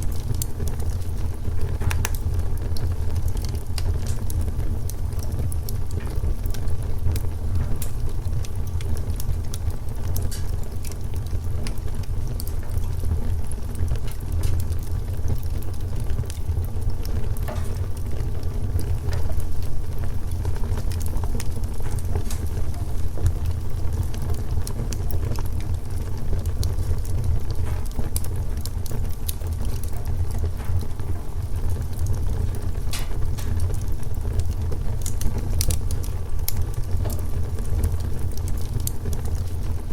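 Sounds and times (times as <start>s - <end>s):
low fire rumble: 0.0s - 39.9s
wood fire crackling and popping: 0.0s - 39.9s.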